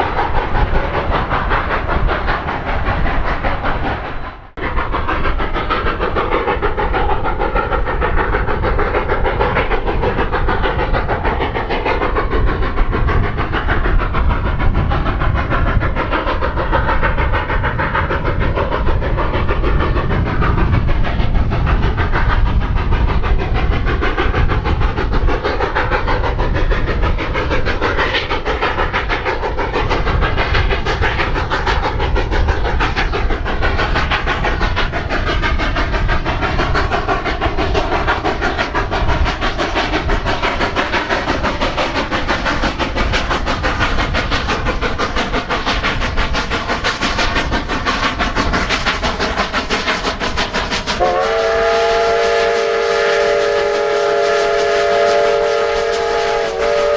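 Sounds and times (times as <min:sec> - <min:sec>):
steam train running: 0:00.0 - 0:56.9.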